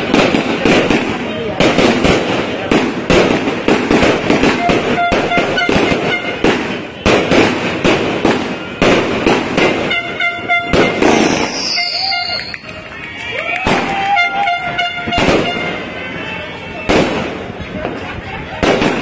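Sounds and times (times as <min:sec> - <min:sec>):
fireworks bangs: 0:00.0 - 0:19.0
high falling whistle: 0:11.2 - 0:12.6.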